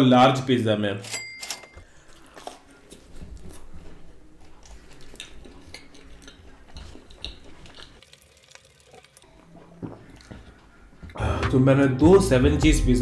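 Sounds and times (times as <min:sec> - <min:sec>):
chewing food: 0:02.0 - 0:11.2.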